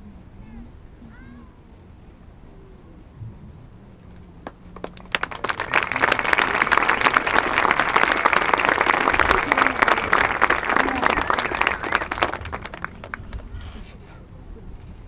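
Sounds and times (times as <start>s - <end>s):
crowd applauding: 4.4s - 13.5s.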